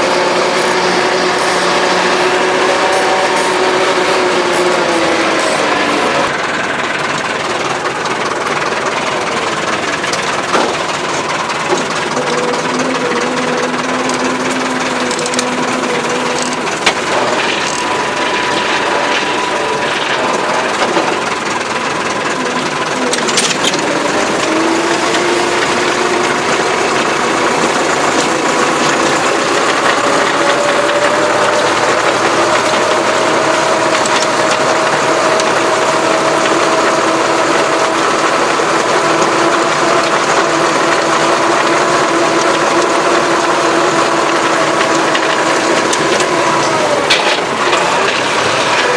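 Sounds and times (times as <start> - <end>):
tractor engine under load: 0.0 - 48.9
sharp knocks and clatters: 7.0 - 12.8, 16.3 - 43.0, 43.9 - 48.9.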